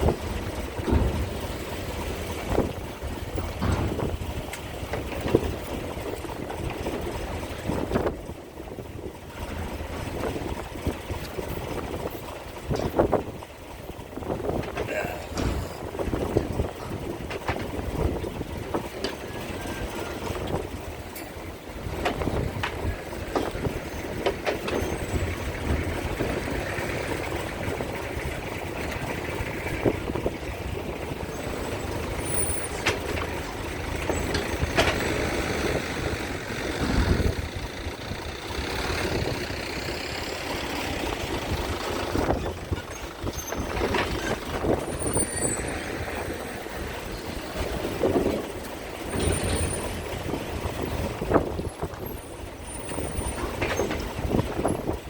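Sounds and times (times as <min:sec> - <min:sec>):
diesel truck engines running: 0:00.0 - 0:55.0
knocks: 0:03.6 - 0:04.2, 0:15.3 - 0:15.7.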